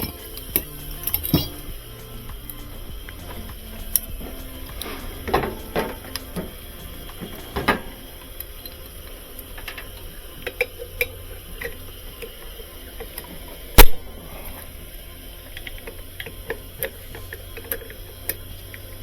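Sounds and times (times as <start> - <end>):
metal parts and tools clicking: 0.0 - 13.9.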